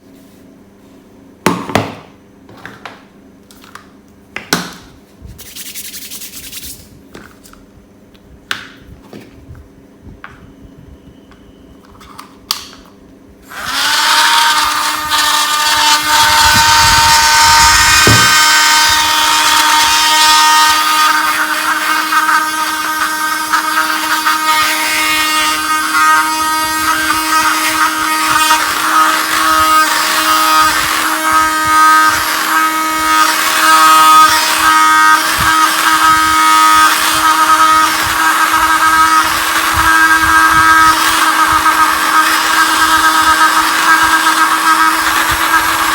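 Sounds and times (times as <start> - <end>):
vacuum motor whining: 13.4 - 45.9.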